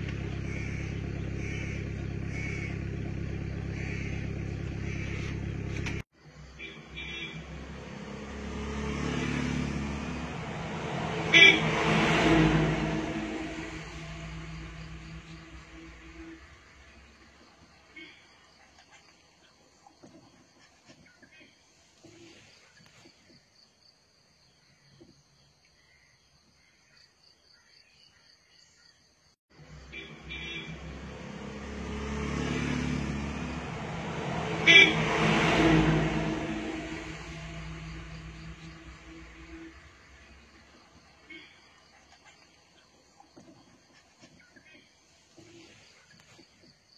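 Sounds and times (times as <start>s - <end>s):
motor vehicle passing: 0.0s - 18.6s, 29.6s - 42.5s.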